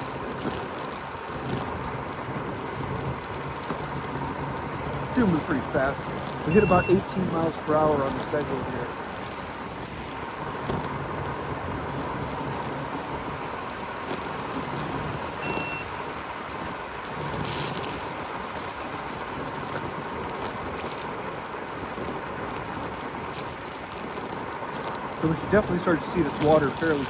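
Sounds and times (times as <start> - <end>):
wind and tyres rushing: 0.0 - 27.0
short high beep: 6.5 - 7.1, 15.4 - 15.9.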